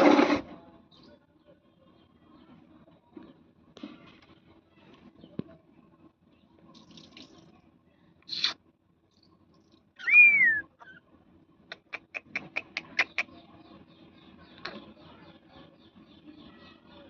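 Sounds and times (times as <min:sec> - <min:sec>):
parrot whistle: 0:10.0 - 0:10.7.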